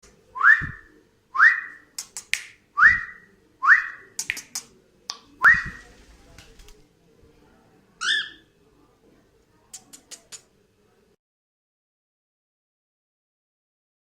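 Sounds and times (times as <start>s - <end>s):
sharp clicks: 2.0s - 2.5s, 4.2s - 5.2s.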